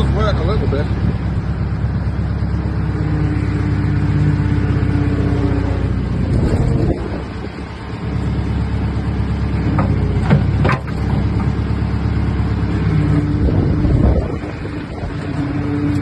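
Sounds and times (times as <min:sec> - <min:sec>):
old diesel engine running: 0:00.0 - 0:16.0.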